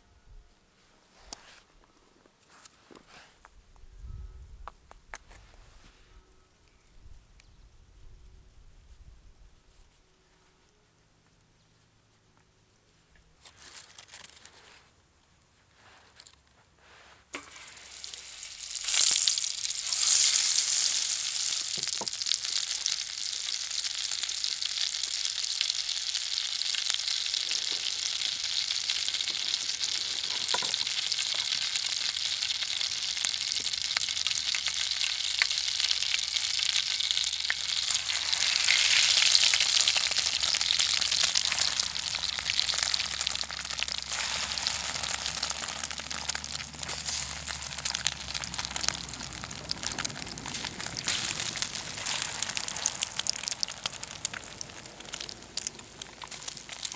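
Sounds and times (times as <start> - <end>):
food sizzling in hot pan: 17.4 - 56.9.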